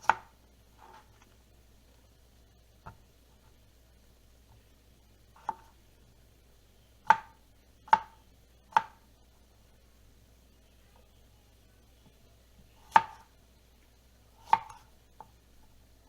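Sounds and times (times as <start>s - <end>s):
knife chopping on cutting board: 0.0s - 0.3s, 5.4s - 5.7s, 7.9s - 9.0s, 12.8s - 13.2s, 14.4s - 14.8s.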